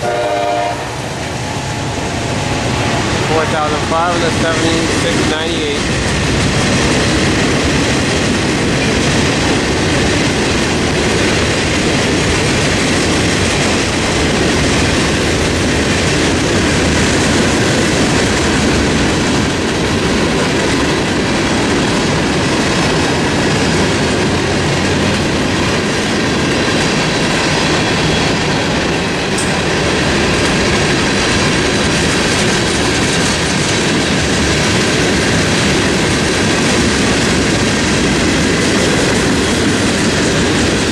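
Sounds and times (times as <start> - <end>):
freight train wheels on rails: 0.0 - 40.9
clickety-clack over rail joints: 2.8 - 40.9.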